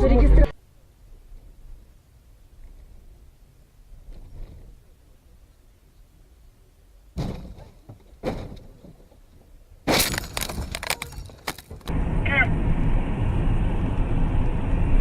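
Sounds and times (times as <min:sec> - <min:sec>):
crash of something shattering: 0:09.9 - 0:11.9.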